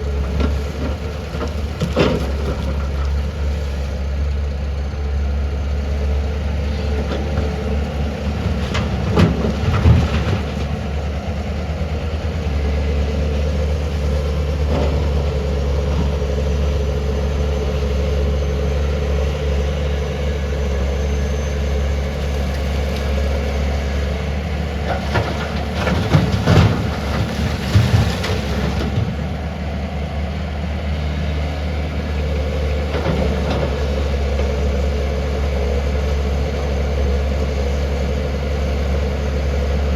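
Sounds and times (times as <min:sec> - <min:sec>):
excavator diesel engine running: 0:00.0 - 0:39.9
clanking and knocking: 0:24.8 - 0:29.2.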